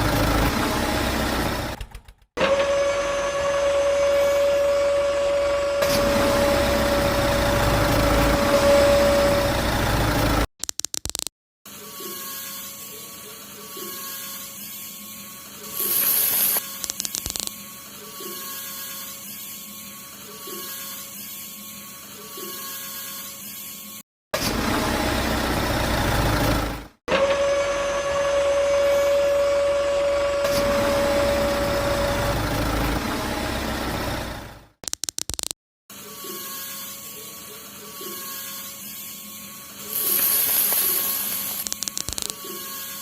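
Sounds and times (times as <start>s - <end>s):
small electric motor whining: 11.7s - 24.0s, 35.9s - 43.0s.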